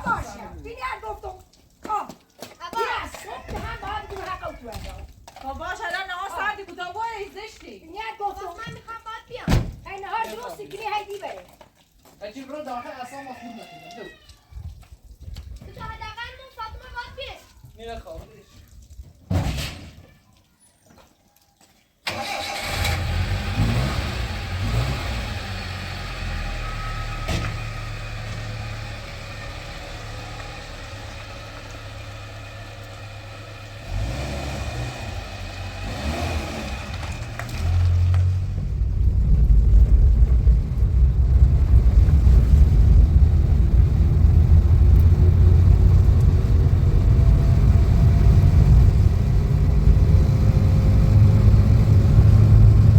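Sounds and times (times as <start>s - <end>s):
car engine revving: 22.2s - 52.9s.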